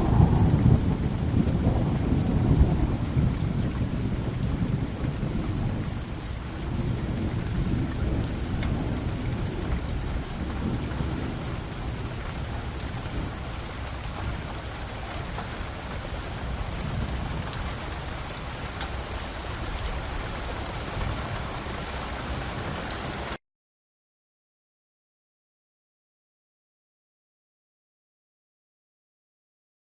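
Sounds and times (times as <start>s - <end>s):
low rolling thunder: 0.0s - 23.4s
rain falling: 0.0s - 23.4s.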